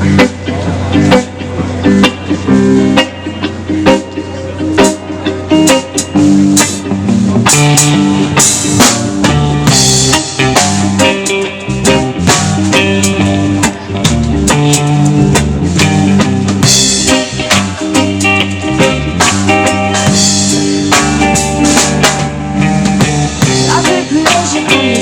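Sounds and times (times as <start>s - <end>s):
drum kit playing: 0.0s - 25.0s
guitar playing: 0.0s - 25.0s.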